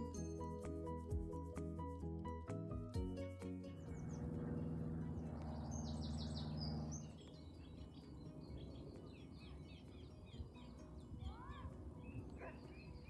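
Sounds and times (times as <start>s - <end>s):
small birds chirping: 3.1s - 13.0s.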